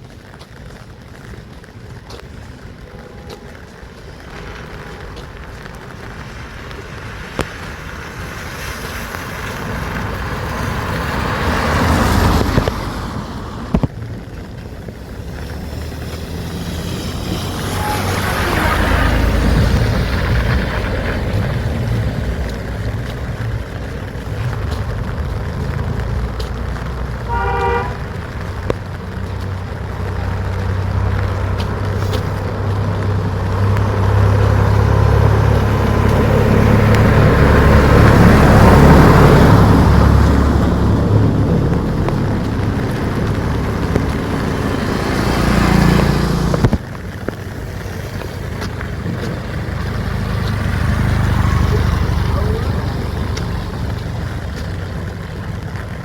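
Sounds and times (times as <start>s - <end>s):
vehicles passing: 0.0s - 56.0s
short horn toot: 17.6s - 19.2s, 27.3s - 28.0s.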